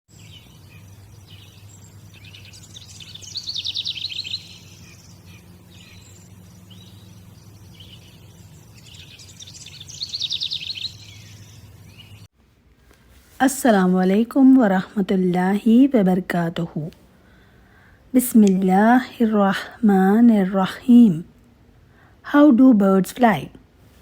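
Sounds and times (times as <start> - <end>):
songbird singing trills: 0.1 - 12.3
steady low hum: 0.1 - 13.7.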